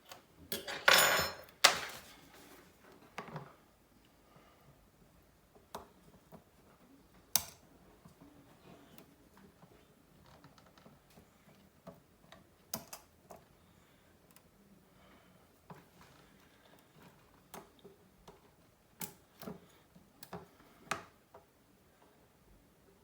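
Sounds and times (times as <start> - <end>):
small tool clicks and taps: 7.3 - 7.6.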